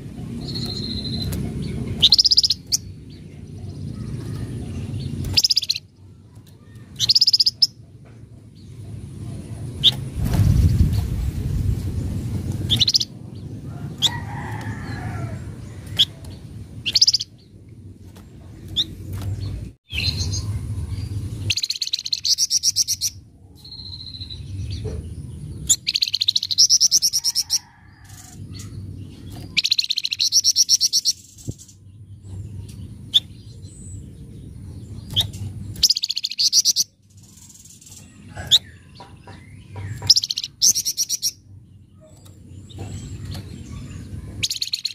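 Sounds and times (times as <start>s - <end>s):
songbird chirps: 0.0s - 10.1s, 14.1s - 44.9s
low background rumble: 0.0s - 44.7s
harsh bird chattering: 0.2s - 2.9s, 35.2s - 41.4s.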